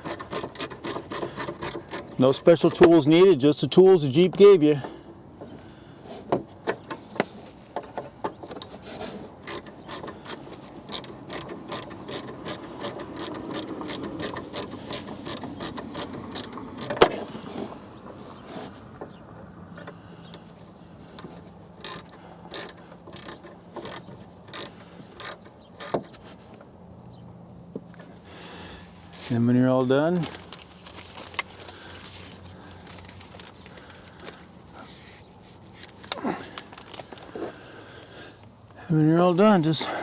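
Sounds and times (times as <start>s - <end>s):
hand ratchet clicking: 0.0s - 3.3s, 7.8s - 17.6s, 19.8s - 26.2s.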